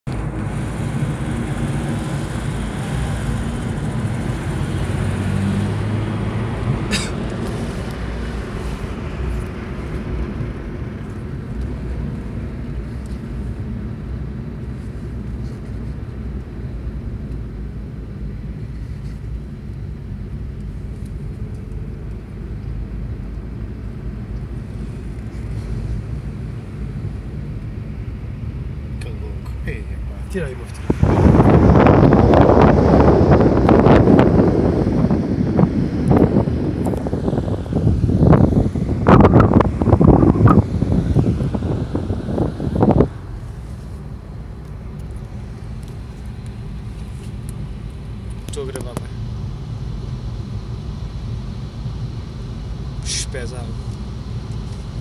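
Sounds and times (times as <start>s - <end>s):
car engine from inside cabin: 0.1s - 55.0s
tyre and wind noise: 30.7s - 44.7s.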